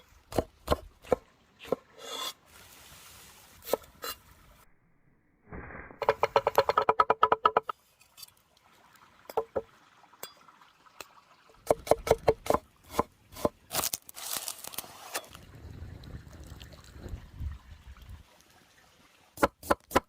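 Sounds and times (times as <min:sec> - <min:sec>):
scattered knocks: 0:06.0 - 0:07.7.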